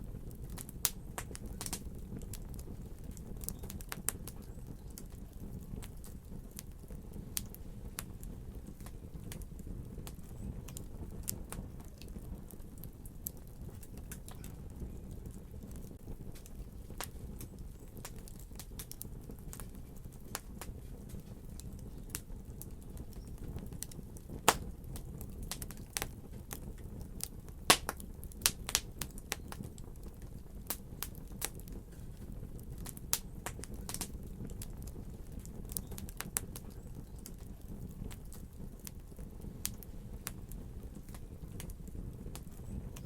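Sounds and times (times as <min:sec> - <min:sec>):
fire crackling: 0:00.0 - 0:43.0
low steady fire rumble: 0:00.0 - 0:43.0.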